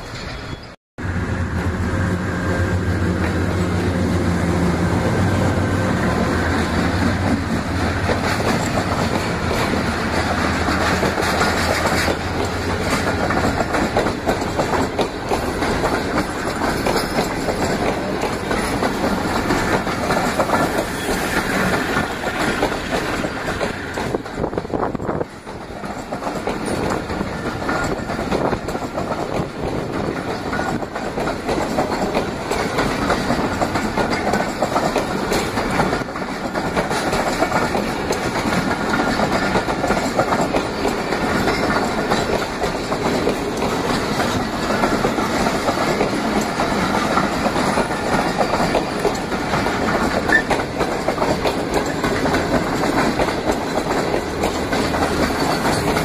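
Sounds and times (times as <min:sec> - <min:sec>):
train wheels running on rails: 0:00.0 - 0:56.0.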